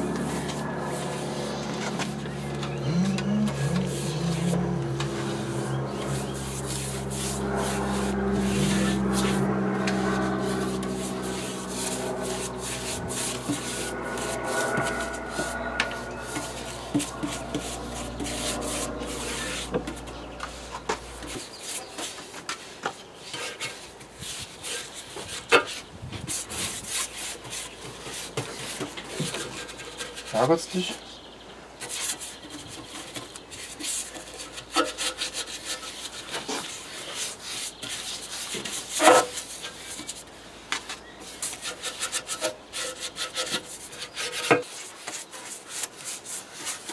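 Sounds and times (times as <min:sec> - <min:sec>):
low motor hum: 0:00.0 - 0:21.5
tool scraping cast iron: 0:00.2 - 0:22.0, 0:41.3 - 0:46.9.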